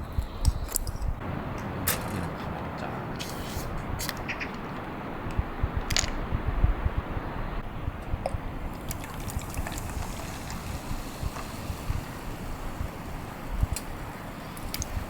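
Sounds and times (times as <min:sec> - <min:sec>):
wind buffeting microphone: 0:00.0 - 0:15.0
faint clicks: 0:13.5 - 0:15.0.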